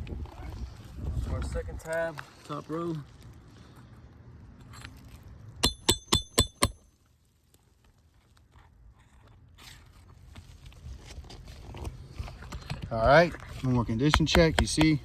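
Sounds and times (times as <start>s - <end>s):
hammer striking steel: 5.6s - 6.8s.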